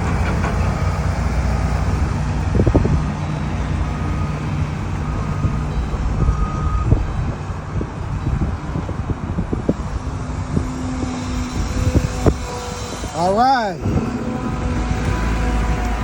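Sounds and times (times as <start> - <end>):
heavy vehicle engines rumbling: 0.0 - 16.0
reversing alarm beeps: 2.6 - 10.0.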